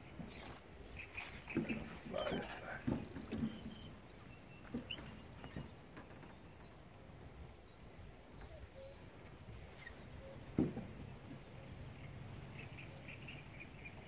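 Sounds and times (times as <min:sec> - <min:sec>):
bird calls: 0:00.1 - 0:14.0
soft knocks: 0:10.5 - 0:11.0.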